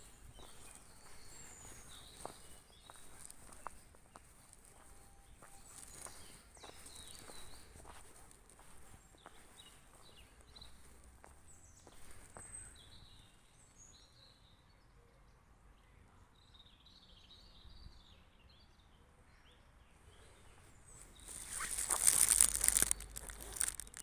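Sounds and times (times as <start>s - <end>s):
small birds chirping: 0.0s - 14.7s, 16.4s - 24.0s
loud crackling rustle: 21.2s - 24.0s.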